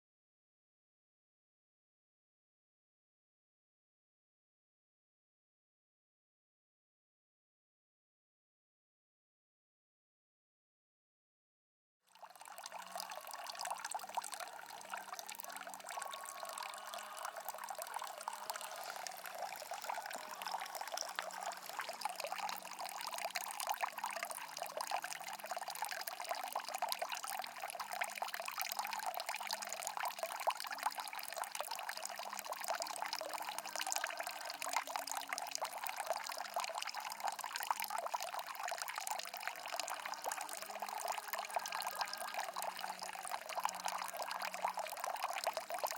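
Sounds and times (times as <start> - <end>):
stream water rushing: 14.6 - 22.9.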